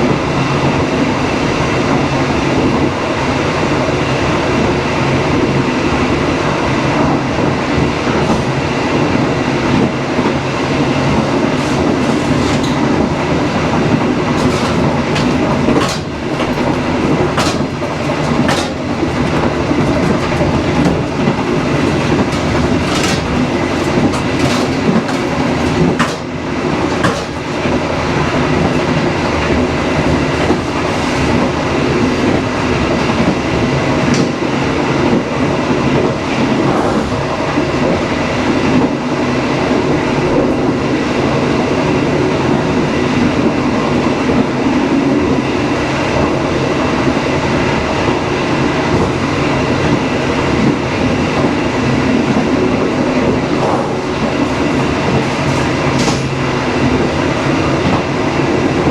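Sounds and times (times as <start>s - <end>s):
train rumbling on rails: 0.0s - 58.9s
sharp clicks from track: 54.7s - 56.4s.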